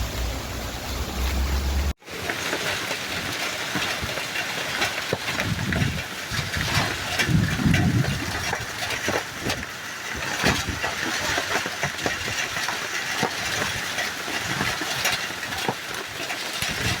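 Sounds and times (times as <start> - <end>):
low rumble: 0.0 - 2.0.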